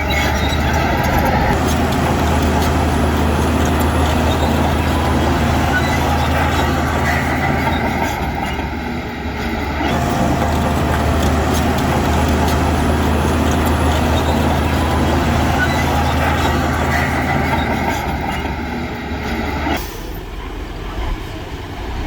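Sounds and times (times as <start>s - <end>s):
diesel machinery engine running: 0.0s - 22.0s
broad rushing noise: 1.0s - 8.2s, 9.9s - 19.1s.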